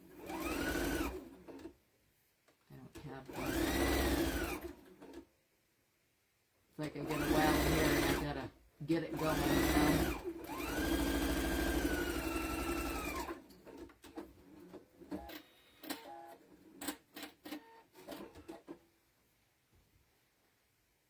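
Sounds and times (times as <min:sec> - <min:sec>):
sewing machine motor whine: 0:00.2 - 0:01.7, 0:03.3 - 0:05.2, 0:07.0 - 0:08.3, 0:09.1 - 0:13.9.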